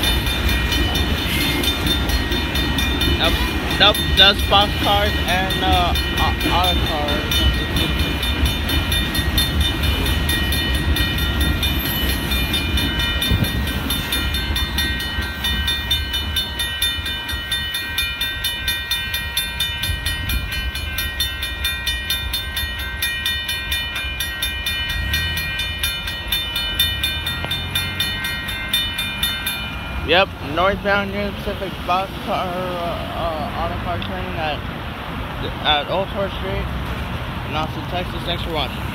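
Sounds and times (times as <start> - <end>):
crossing warning bell ringing: 0.0 - 36.7, 37.5 - 38.9
freight train rumble: 0.0 - 38.9.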